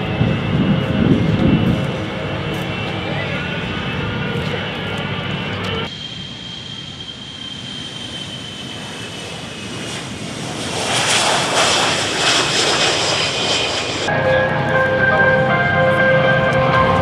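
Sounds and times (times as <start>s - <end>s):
jet aircraft flying past: 0.0s - 17.0s.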